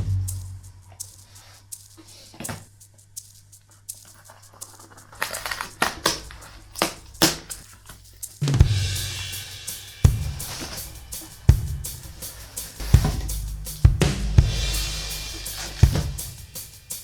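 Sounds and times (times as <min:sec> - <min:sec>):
packaging crinkling: 0:01.0 - 0:08.4
thump: 0:12.9 - 0:13.3.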